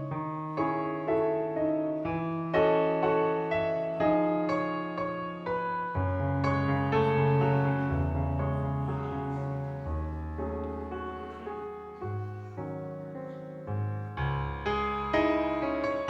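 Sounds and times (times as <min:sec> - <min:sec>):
keyboard playing slow chords: 0:06.4 - 0:13.3.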